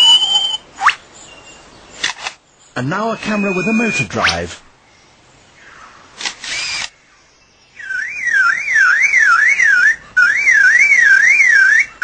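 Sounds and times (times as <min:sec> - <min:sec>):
bird mimicking camera motor drive: 0:06.2 - 0:07.0.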